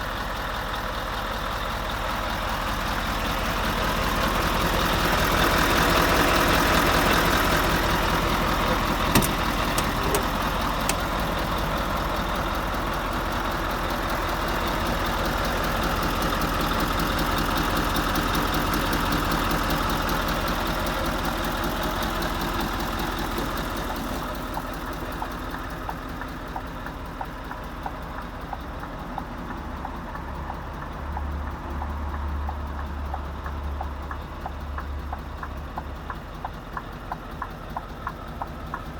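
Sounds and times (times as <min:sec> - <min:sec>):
diesel engine running: 0:00.0 - 0:38.9
light ticks: 0:24.6 - 0:38.9.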